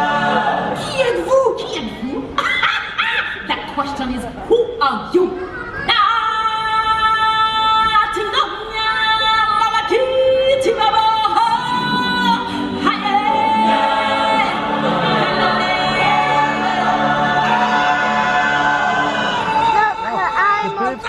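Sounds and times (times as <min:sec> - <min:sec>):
choir singing long notes: 0:00.0 - 0:01.0, 0:11.5 - 0:21.0.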